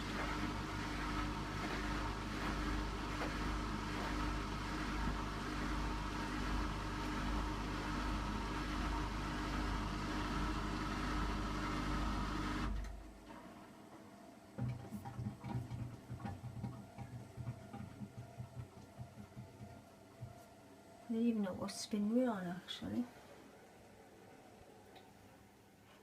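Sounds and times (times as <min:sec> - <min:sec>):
drain pump humming: 0:00.0 - 0:13.0, 0:14.6 - 0:20.4
washing machine low thumps: 0:14.6 - 0:20.4.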